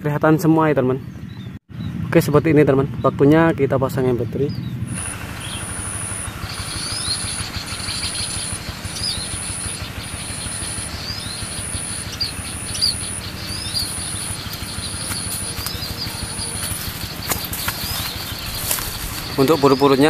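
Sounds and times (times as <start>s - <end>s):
small bird chirping: 4.5s - 20.0s.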